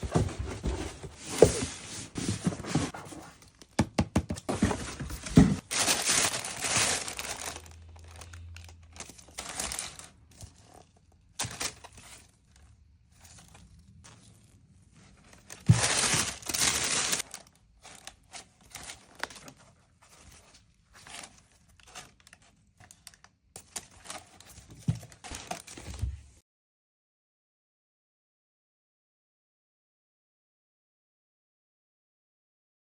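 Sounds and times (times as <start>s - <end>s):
paper crinkling and rustling: 0.0s - 3.8s, 4.4s - 12.6s, 13.2s - 26.4s
box scraping and knocking: 0.0s - 5.9s, 15.6s - 17.2s.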